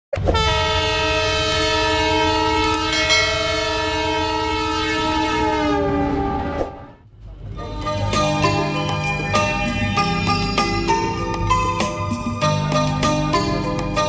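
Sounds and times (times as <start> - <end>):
train horn long blast: 0.3 - 8.6.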